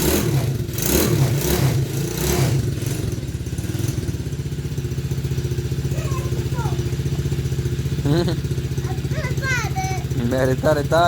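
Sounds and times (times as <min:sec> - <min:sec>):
small engine revving and idling: 0:00.0 - 0:11.0.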